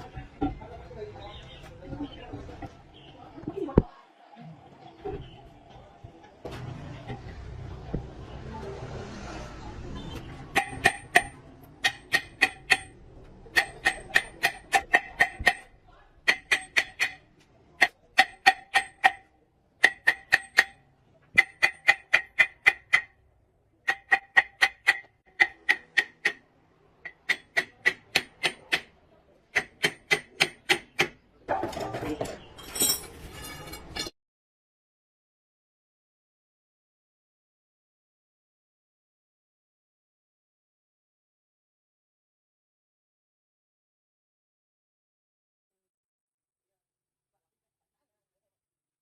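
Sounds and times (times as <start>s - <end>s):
noisy scraping: 6.5s - 10.6s.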